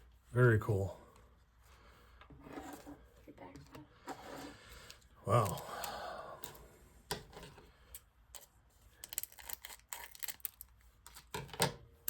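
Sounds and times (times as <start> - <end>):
cards and packaging handled: 4.8 - 6.6, 8.3 - 11.7.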